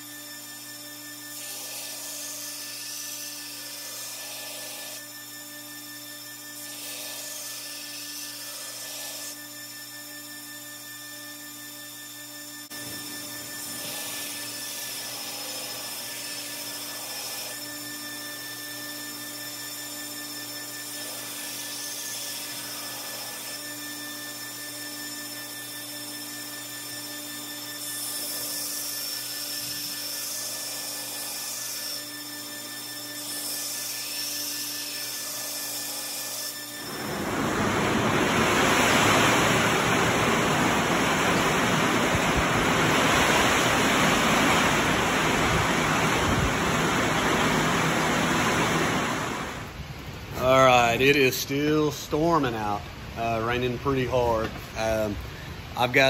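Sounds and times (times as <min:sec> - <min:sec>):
machine hum with tones: 0:00.0 - 0:51.2
heavy rain pouring: 0:37.0 - 0:49.6.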